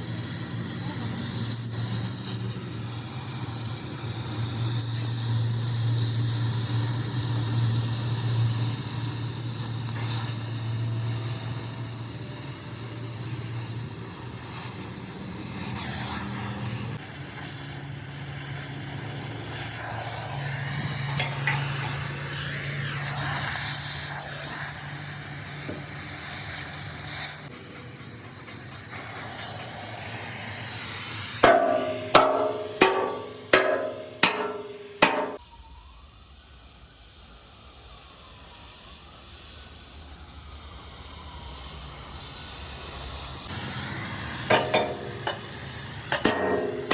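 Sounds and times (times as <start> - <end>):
hammer blows on steel: 31.4 - 35.4, 44.5 - 46.9.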